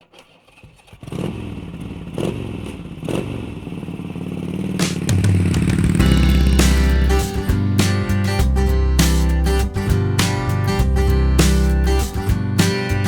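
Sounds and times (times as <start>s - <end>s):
motorcycle engine running: 0.7s - 13.0s
guitar music: 5.1s - 13.0s.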